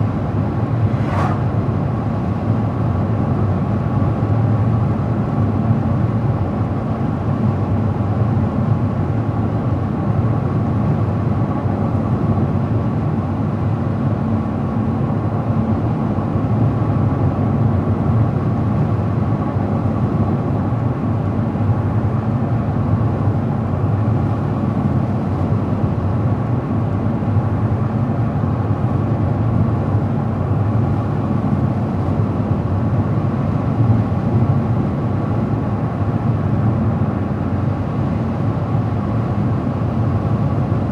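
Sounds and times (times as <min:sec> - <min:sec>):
car road noise rumble: 0:00.0 - 0:03.7.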